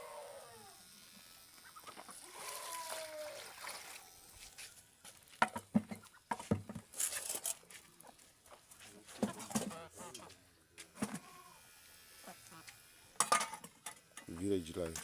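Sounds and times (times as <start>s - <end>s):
chickens clucking: 1.6s - 2.5s, 9.0s - 10.4s
drawn-out chicken call: 1.6s - 3.6s.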